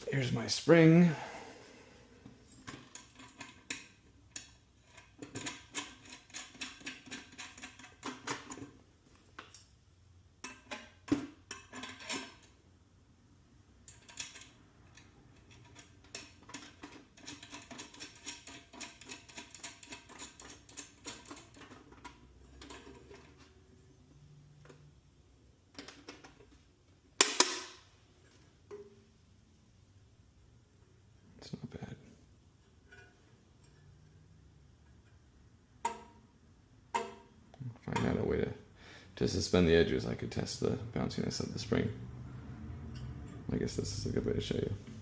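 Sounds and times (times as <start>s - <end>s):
small metal parts clicking: 13.8s - 23.2s.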